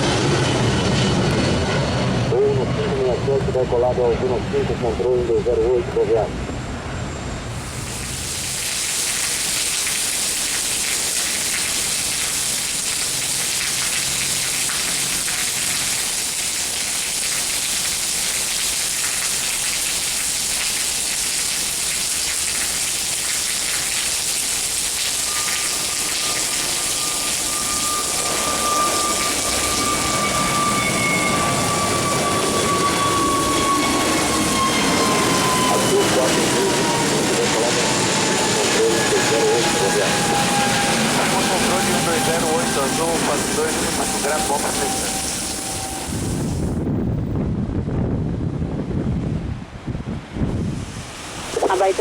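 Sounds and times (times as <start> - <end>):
jet engine whine: 0.0 - 18.6, 24.6 - 52.0
heavy rain: 7.5 - 30.1, 50.8 - 52.0
low rumble: 41.0 - 50.9.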